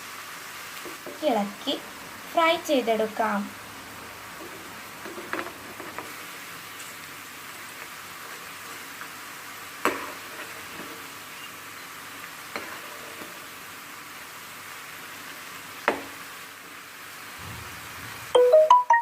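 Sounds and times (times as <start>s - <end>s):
food frying in hot oil: 0.0s - 18.6s.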